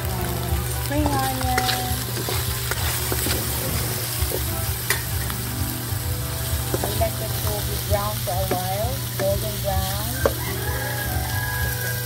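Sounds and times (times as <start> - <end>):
chicken sizzling in a wok: 0.0 - 12.0
metal ladle scraping a pan: 0.6 - 5.4.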